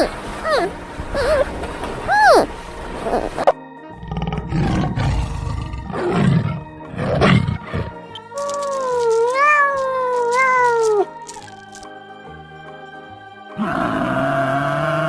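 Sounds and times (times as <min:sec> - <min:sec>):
big cat roaring: 0:03.9 - 0:08.2, 0:13.6 - 0:15.0
cat meowing: 0:07.4 - 0:11.2.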